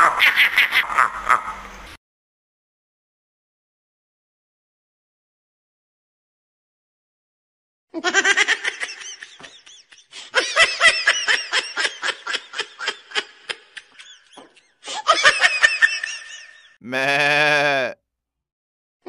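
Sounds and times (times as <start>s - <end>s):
high-pitched laughter: 0.0s - 1.6s, 8.0s - 17.1s.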